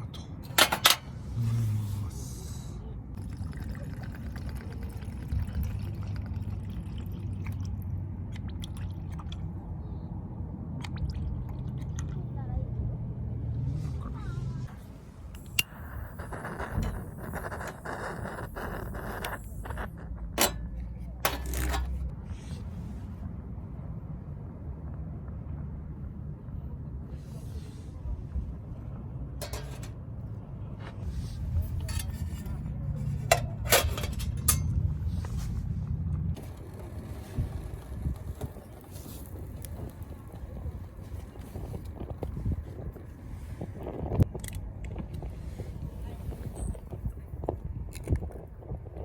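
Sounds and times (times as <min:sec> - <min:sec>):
metal camp gear scraping: 0:00.0 - 0:02.2, 0:14.8 - 0:22.6, 0:29.4 - 0:30.2, 0:31.0 - 0:35.6, 0:36.4 - 0:42.1
wind rumbling on microphone: 0:01.2 - 0:49.0.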